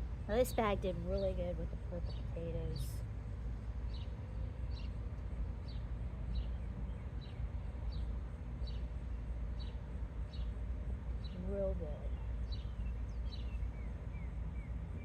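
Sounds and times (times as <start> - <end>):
steady low rumble: 0.0 - 15.0
bird chirping: 11.2 - 15.0.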